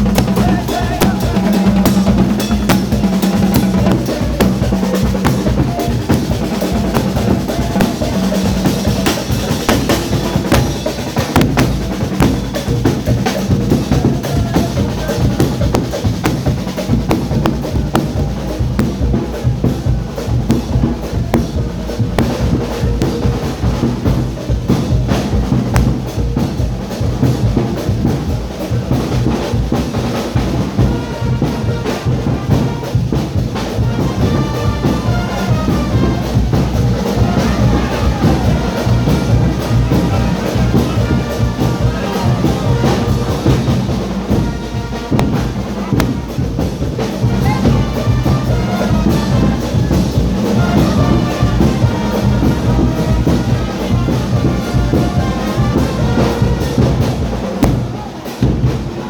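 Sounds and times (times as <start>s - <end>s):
brass melody: 0.0s - 26.5s, 27.2s - 59.0s
carnival band music: 0.0s - 59.0s
drums and percussion beat: 0.0s - 59.0s.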